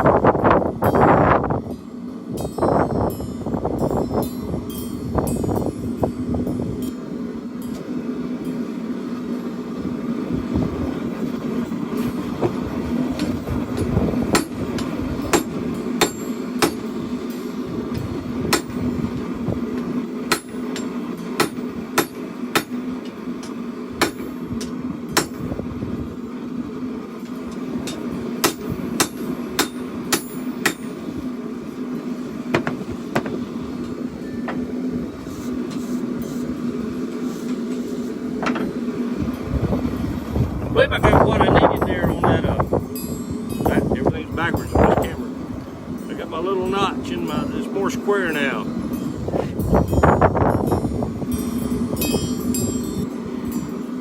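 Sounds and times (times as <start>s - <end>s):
steady hum: 0.0s - 54.0s
hammer striking blade on anvil: 13.2s - 16.9s, 20.3s - 22.8s, 23.4s - 25.4s, 27.9s - 30.9s.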